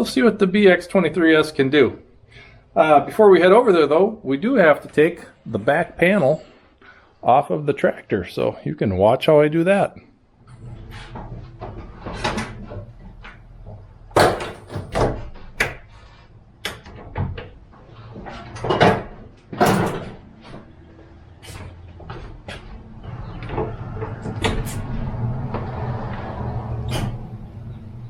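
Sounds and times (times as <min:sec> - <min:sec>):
knocks and clunks of metal panel: 0:13.7 - 0:15.8.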